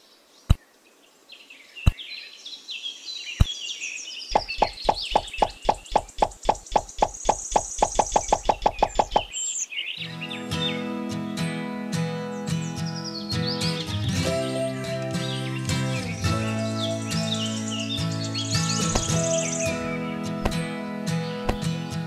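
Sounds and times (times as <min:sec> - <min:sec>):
birds chirping: 0:00.0 - 0:11.4, 0:12.2 - 0:22.0
sharp knocks: 0:04.4 - 0:09.3, 0:18.9 - 0:19.3, 0:20.4 - 0:20.6, 0:21.5 - 0:21.7.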